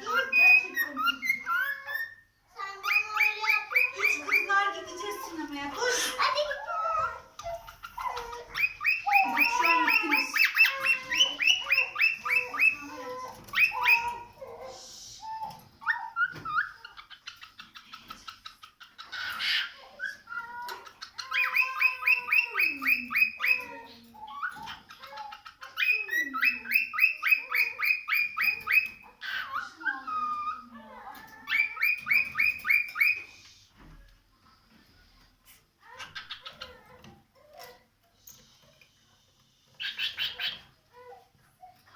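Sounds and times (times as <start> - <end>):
cockatiel chirping: 0.1 - 4.5, 6.1 - 14.4, 15.2 - 30.6, 31.4 - 33.3, 39.8 - 40.7.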